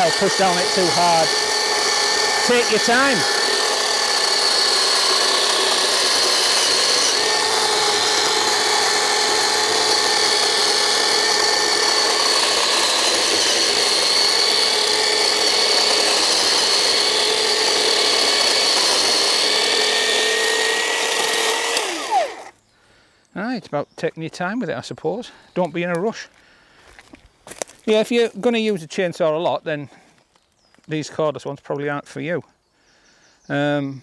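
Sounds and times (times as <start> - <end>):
electric chainsaw cutting log: 0.0 - 22.5.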